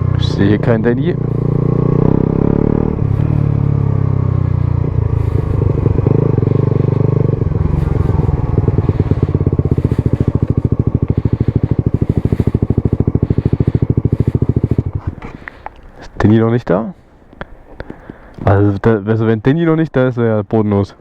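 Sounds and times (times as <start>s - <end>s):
motorcycle engine idling: 0.0s - 16.1s.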